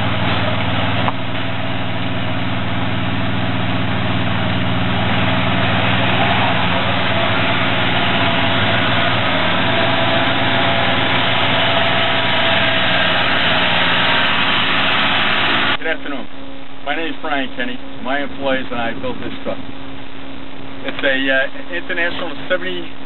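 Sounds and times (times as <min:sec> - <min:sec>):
engine idling: 0:00.0 - 0:15.8
faint high whine: 0:00.0 - 0:23.0.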